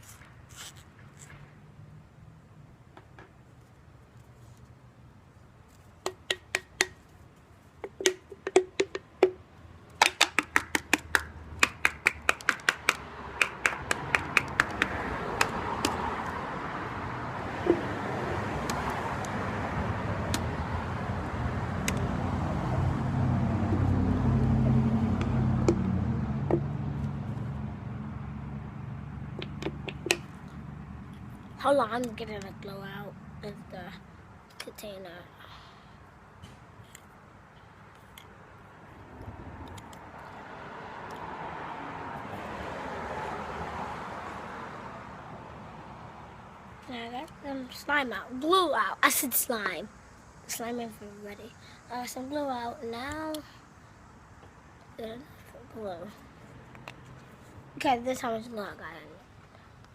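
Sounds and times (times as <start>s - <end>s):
sharp clicks and taps: 6.0s - 7.1s, 7.8s - 16.0s, 21.8s - 22.0s, 29.4s - 30.4s.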